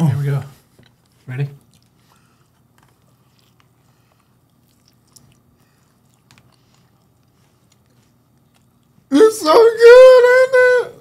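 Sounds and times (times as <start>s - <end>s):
person chewing food: 0.7s - 9.1s.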